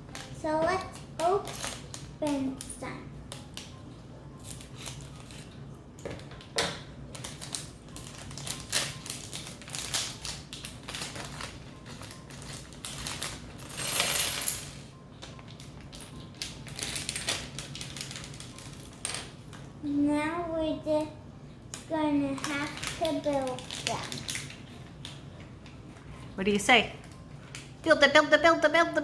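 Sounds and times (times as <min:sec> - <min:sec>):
plastic packaging crinkling: 0:07.1 - 0:13.7, 0:15.5 - 0:18.9, 0:22.3 - 0:25.2.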